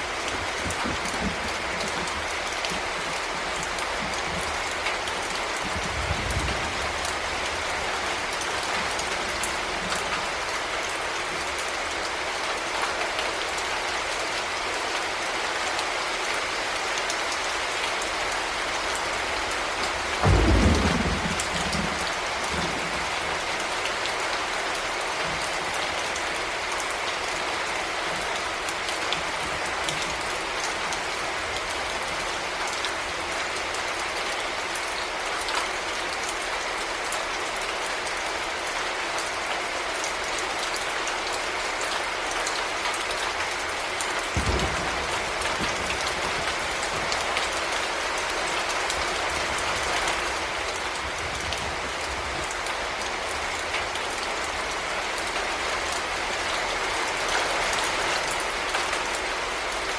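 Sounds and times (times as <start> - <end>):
heavy rain falling: 0.0 - 59.9
thunder rumbling: 20.2 - 23.5, 44.3 - 47.4
thunder crack: 44.4 - 47.1.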